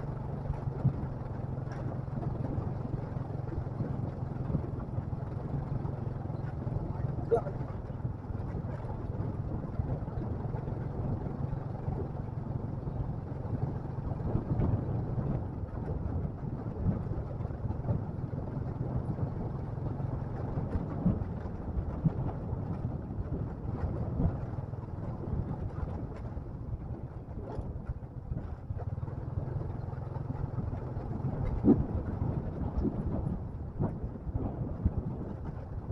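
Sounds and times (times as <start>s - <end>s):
motorcycle engine running: 0.0s - 35.9s
wind noise on microphone: 0.0s - 35.9s.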